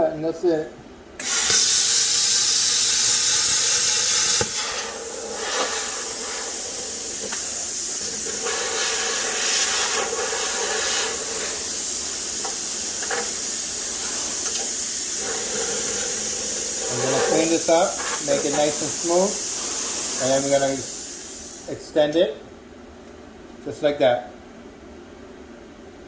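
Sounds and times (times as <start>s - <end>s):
plasma cutter air hiss: 1.2s - 22.0s.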